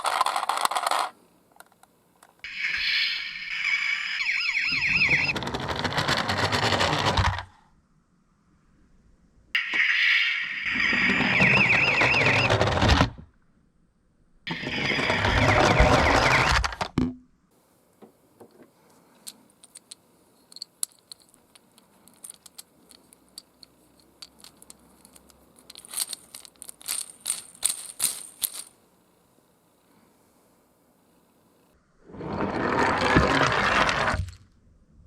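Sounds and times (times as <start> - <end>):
metal toy cars clinking: 0.0 - 1.2, 19.2 - 28.8
toy cars rolling down ramp: 0.0 - 1.2, 4.3 - 7.5, 10.7 - 13.2, 14.5 - 17.0, 32.1 - 34.4
warbling siren: 2.5 - 5.3, 9.6 - 12.7.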